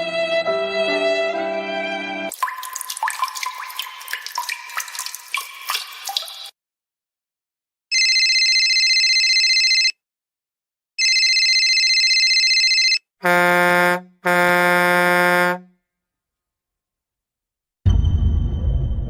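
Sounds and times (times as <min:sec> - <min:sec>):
horn-like honks: 0:13.2 - 0:15.8.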